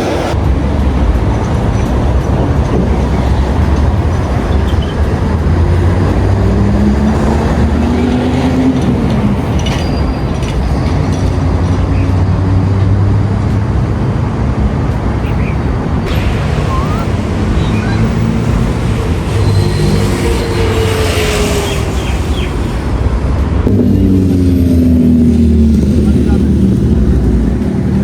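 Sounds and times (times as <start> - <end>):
road traffic rumble: 0.0 - 28.0
vehicle engine rising in pitch: 2.7 - 9.8, 16.0 - 28.0.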